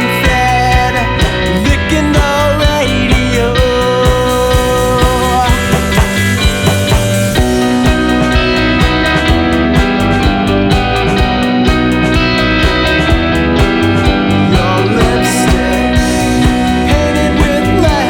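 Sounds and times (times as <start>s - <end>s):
drums keeping a steady beat: 0.0s - 18.0s
rock band music: 0.0s - 18.0s
gliding guitar lines: 4.4s - 18.0s.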